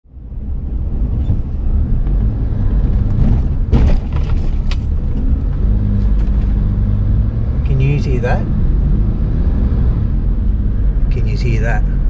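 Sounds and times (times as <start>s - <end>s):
car driving low rumble: 0.0s - 12.0s
suspension knocks: 1.2s - 6.9s.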